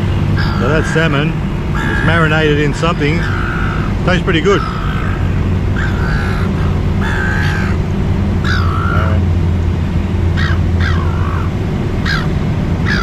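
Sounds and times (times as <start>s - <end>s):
seagulls squawking: 0.0s - 9.3s, 10.2s - 13.0s
steady low hum: 0.0s - 13.0s.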